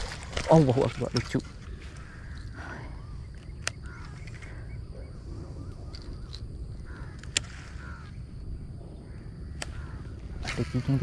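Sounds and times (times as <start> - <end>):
birds harsh calls: 0.0 - 11.0
wind rumble on microphone: 0.0 - 11.0
sharp clicks: 3.3 - 4.6, 5.9 - 7.6.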